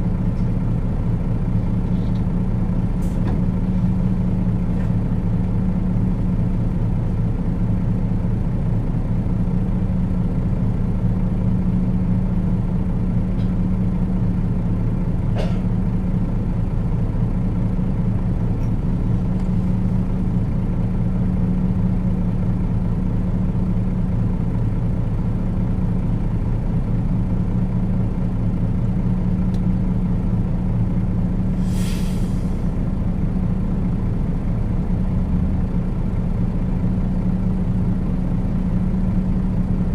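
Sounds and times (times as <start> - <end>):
bus diesel engine hum: 0.0 - 39.9
air brake hiss: 31.6 - 32.7.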